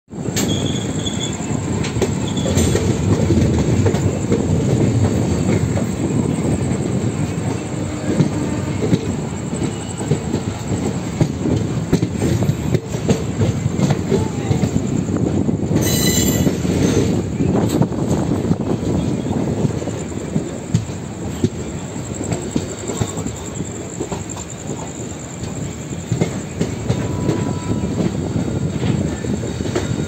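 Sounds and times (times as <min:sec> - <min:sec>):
train wheels rumbling on rails: 0:00.1 - 0:30.0
wheels clacking over rail joints: 0:00.1 - 0:30.0
faint wheel squeal: 0:00.4 - 0:03.0, 0:15.8 - 0:17.1.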